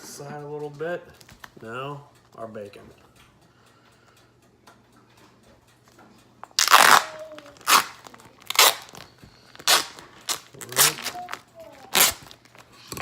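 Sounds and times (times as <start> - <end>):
plastic package tearing and crinkling: 6.6 - 13.0.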